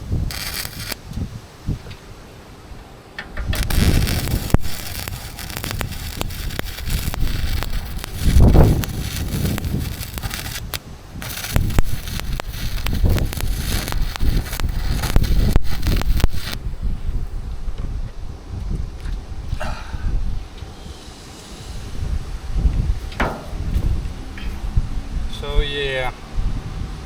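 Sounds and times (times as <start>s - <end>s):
welding arc crackling: 0.0s - 1.2s, 3.6s - 16.7s
wind buffeting microphone: 0.0s - 2.2s, 3.3s - 27.0s.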